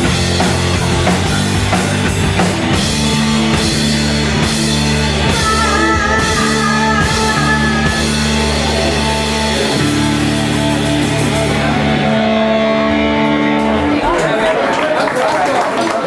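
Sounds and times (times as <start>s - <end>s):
live rock band playing: 0.0s - 14.4s
electric guitar: 0.0s - 14.9s.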